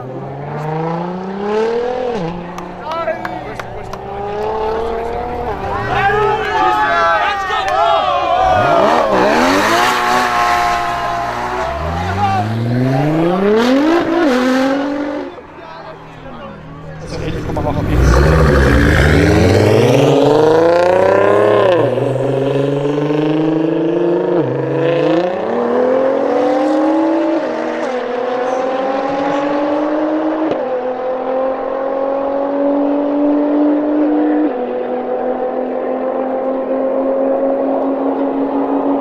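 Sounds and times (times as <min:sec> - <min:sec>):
car engine accelerating hard: 0:00.0 - 0:07.4, 0:08.0 - 0:39.0.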